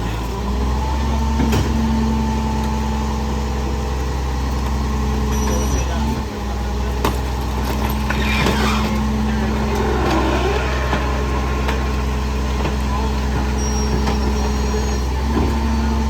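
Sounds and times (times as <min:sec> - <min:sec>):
diesel engine idling: 0:02.4 - 0:16.0.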